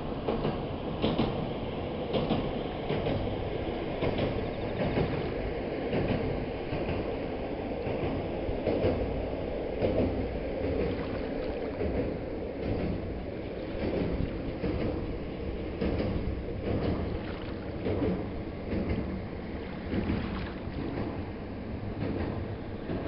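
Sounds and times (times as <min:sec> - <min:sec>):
train rumbling over steel bridge: 0:00.0 - 0:23.0
wheels clacking on bridge: 0:00.0 - 0:23.0.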